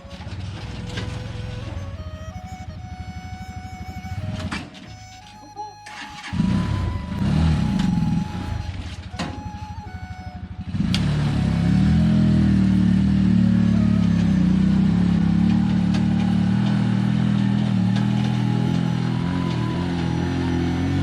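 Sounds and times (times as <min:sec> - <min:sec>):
motor tricycle engine revving: 0:00.0 - 0:21.0.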